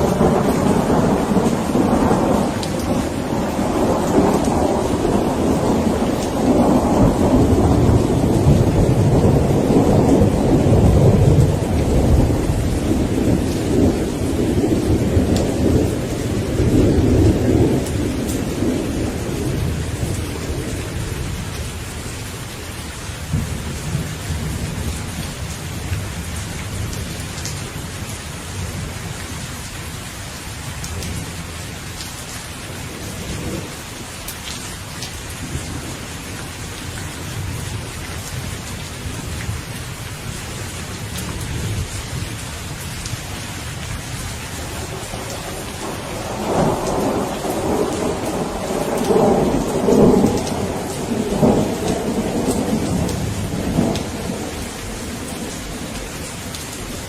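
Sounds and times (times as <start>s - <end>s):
thunder rumbling: 0.0s - 22.3s, 35.0s - 57.0s
steady rain falling: 0.0s - 57.0s.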